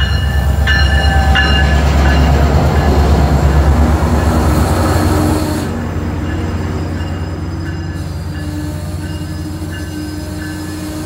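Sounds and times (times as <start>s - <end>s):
train rolling rumble: 0.0s - 11.0s
wheel and brake squeals: 6.8s - 11.0s.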